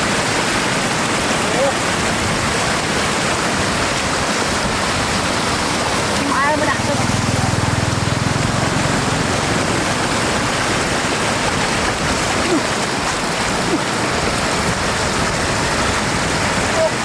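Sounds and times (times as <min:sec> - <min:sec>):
floodwater rushing: 0:00.0 - 0:17.0.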